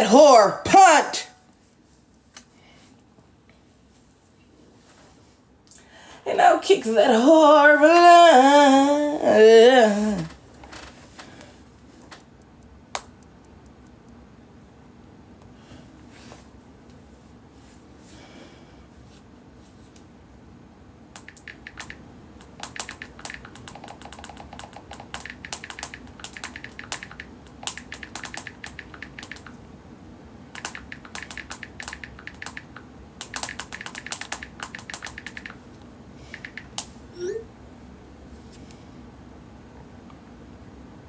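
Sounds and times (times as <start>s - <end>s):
quick light clicks: 30.6s - 35.6s, 36.3s - 36.9s.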